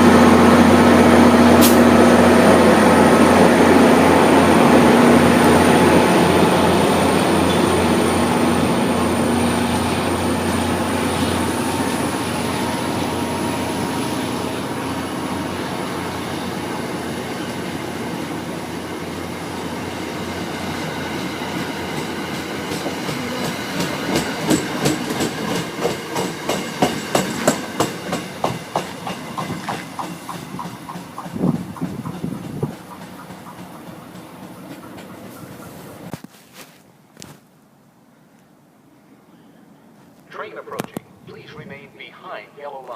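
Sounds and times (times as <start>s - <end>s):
train rumbling on rails: 0.0s - 36.1s
wheels clicking over rail joints: 22.6s - 36.1s.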